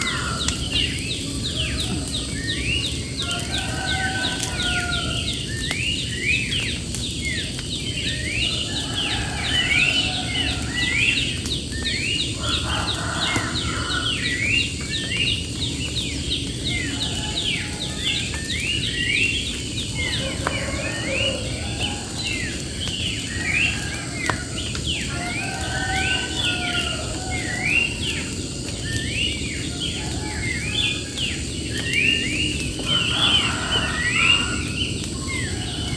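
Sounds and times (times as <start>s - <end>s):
insect drone: 0.0s - 35.9s
songbirds chirping: 0.0s - 35.9s.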